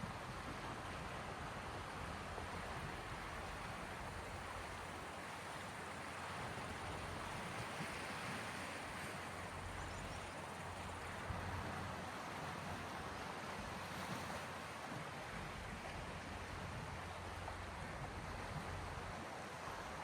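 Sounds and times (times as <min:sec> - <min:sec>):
sea waves washing on shore: 0:00.0 - 0:20.0.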